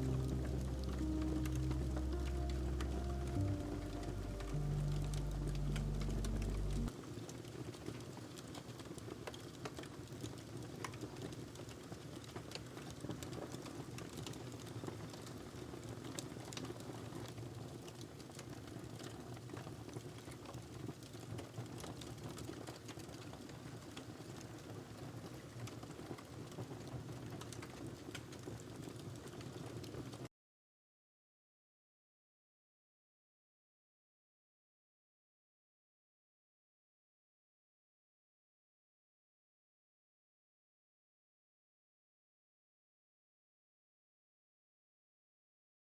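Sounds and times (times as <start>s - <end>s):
music: 0.0s - 6.9s
wood fire crackling: 0.0s - 30.2s.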